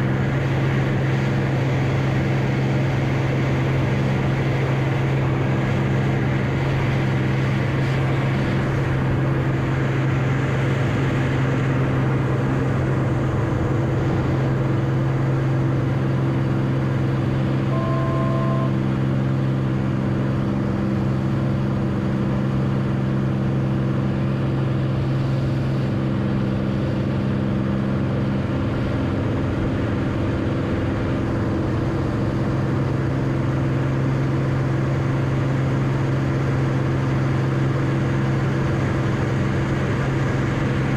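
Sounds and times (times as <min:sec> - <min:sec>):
propeller plane engine droning: 0:00.0 - 0:40.9
two-tone beep: 0:17.7 - 0:18.8.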